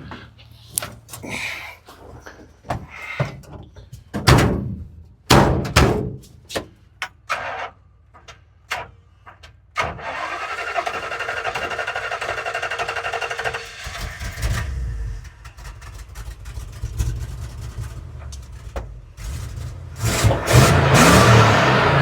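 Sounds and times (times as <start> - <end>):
car engine starting and running: 9.7 - 22.0.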